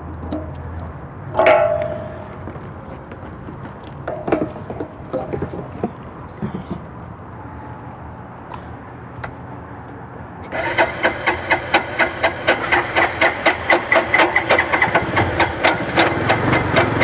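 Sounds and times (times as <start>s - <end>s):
motorcycle engine cranking: 10.5s - 17.0s.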